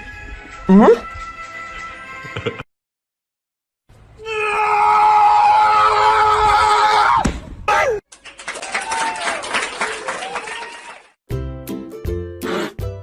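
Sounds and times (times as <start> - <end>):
person screaming: 4.2 - 8.0.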